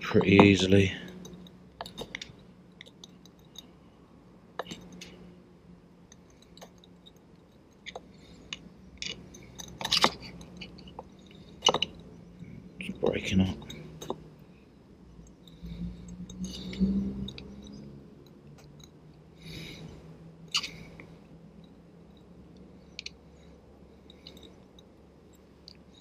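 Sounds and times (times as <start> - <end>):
screwdriver scraping metal: 9.0 - 12.0.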